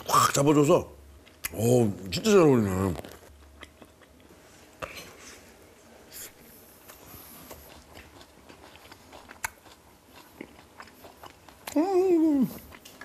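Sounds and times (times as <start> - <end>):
man chewing: 2.3 - 13.0.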